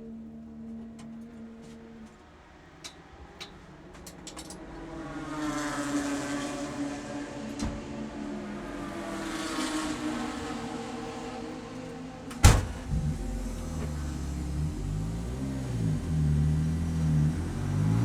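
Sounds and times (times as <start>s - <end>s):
race car engine running: 4.6s - 18.0s.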